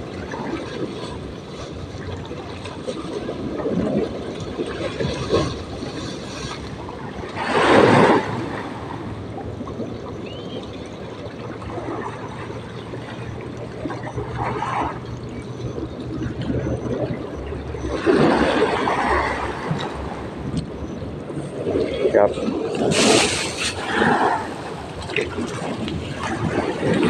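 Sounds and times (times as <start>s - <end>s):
seawater lapping and gurgling: 0.0s - 27.0s
rushes of noise: 5.2s - 9.4s, 14.0s - 27.0s.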